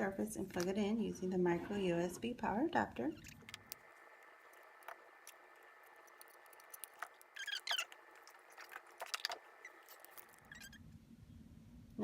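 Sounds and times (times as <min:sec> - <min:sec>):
short squeaky scrapes: 0:07.3 - 0:08.0, 0:09.1 - 0:10.8.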